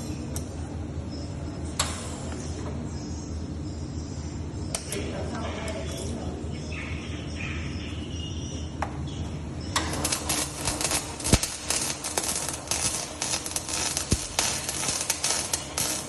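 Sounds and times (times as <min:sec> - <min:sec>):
low steady hum: 0:00.0 - 0:16.0
welding arc crackling: 0:09.7 - 0:16.0.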